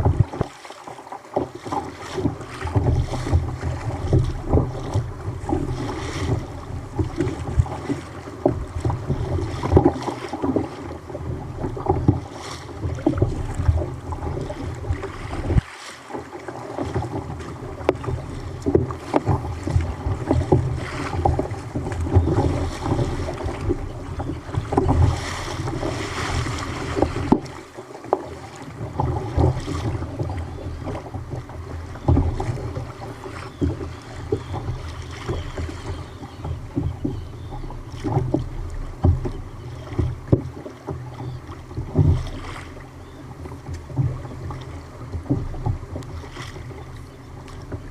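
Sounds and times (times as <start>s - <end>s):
water splashing against kayak: 0.0s - 47.9s
wind buffeting microphone: 12.9s - 15.6s.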